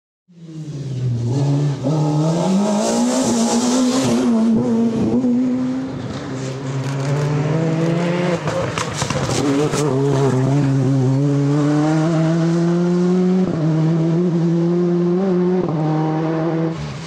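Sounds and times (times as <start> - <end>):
rally car engine accelerating: 0.3 - 17.0.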